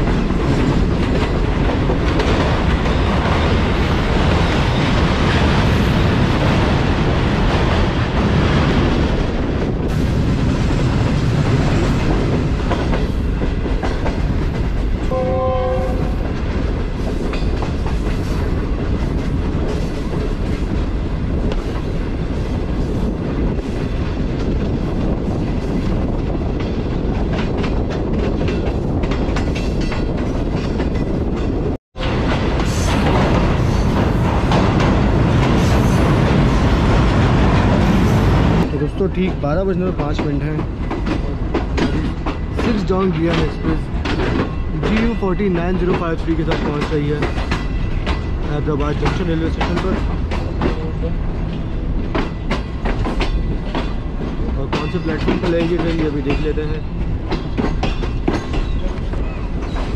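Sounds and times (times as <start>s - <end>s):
passenger train rumbling: 0.0s - 59.9s
train horn blast: 15.1s - 16.2s
wheels clattering over rail joints: 16.2s - 59.9s.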